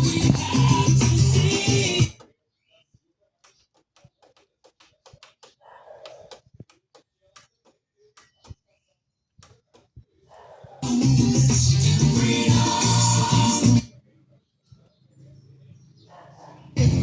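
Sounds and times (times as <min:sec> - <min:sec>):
stereo controls clicking: 0:03.4 - 0:08.6.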